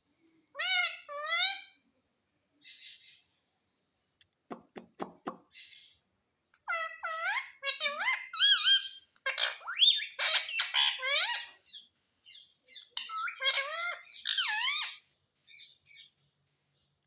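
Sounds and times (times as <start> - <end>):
parrot squawking: 0.6 - 1.8, 6.7 - 11.9, 12.7 - 15.0.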